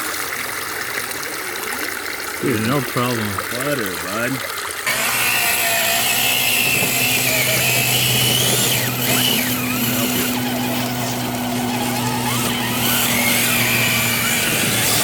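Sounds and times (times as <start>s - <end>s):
electric motor whining: 4.9s - 15.0s.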